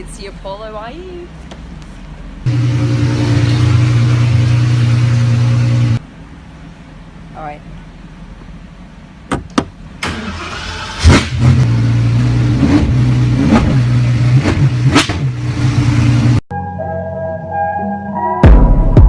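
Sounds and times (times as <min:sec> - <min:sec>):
car engine starting and idling: 0:02.3 - 0:16.4
engine throttle blips: 0:02.4 - 0:06.1.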